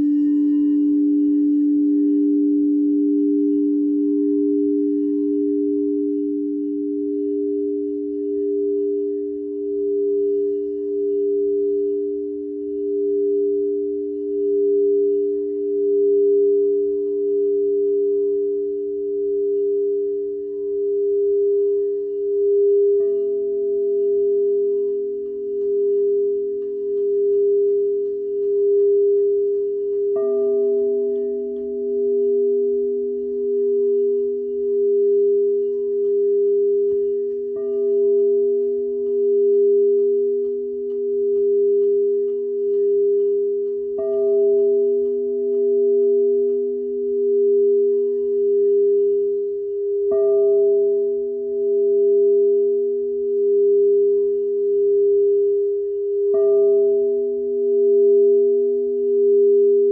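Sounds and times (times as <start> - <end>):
singing bowls struck ringing: 0.0 - 59.9
sustained singing bowl tone: 0.0 - 59.9.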